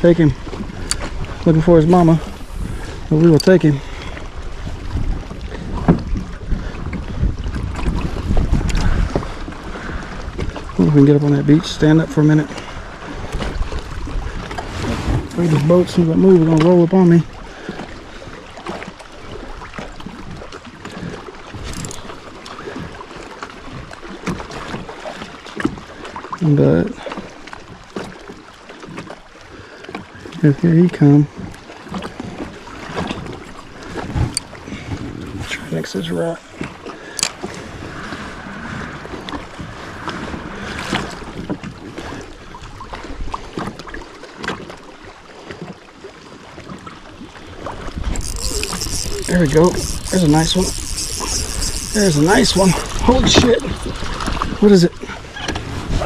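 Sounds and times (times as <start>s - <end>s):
wind on microphone: 0.0s - 11.0s, 12.4s - 16.0s, 32.2s - 44.0s, 47.3s - 56.0s
knocks and clicks against kayak hull: 5.7s - 9.3s, 47.8s - 54.6s, 55.3s - 56.0s.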